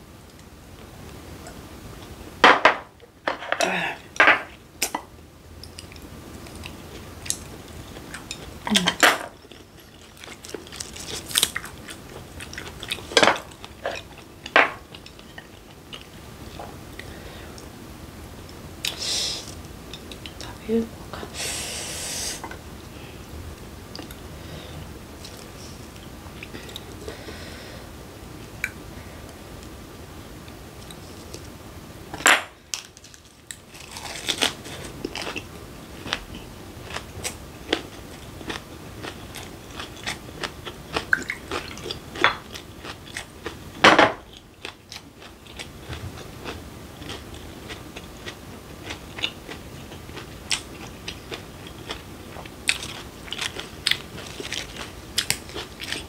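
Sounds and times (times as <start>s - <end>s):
chewing and crunching: 5.6s - 16.8s, 32.8s - 56.0s.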